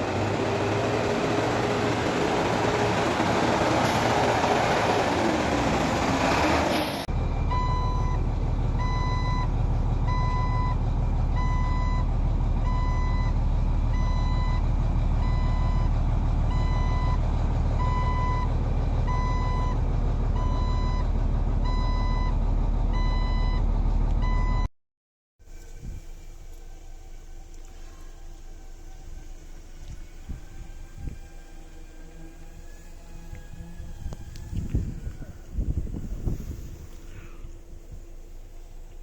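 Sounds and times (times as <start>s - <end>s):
truck engine running: 0.0s - 24.6s, 25.5s - 39.0s
truck reversing alarm beeping: 7.2s - 17.2s, 17.8s - 24.7s.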